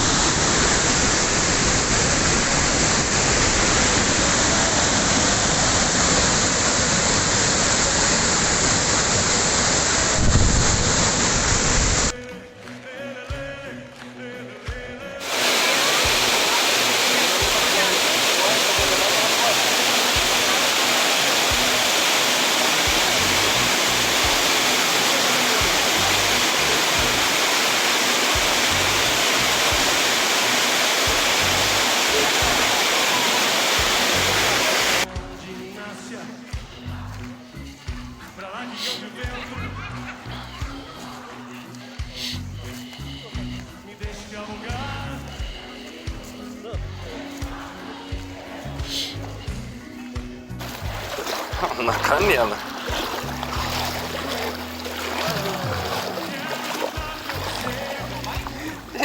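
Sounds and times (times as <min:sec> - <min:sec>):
waterfall rushing: 0:00.0 - 0:12.2, 0:15.2 - 0:35.1, 0:50.6 - 0:59.0
wind buffeting microphone: 0:10.0 - 0:12.1.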